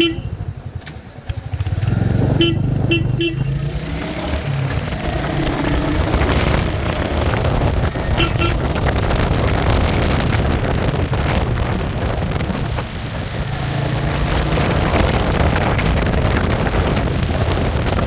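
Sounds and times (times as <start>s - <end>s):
vehicle horn toots: 0.0s - 0.4s, 2.4s - 3.8s, 7.9s - 9.0s
motorcycle engine running: 0.0s - 18.0s.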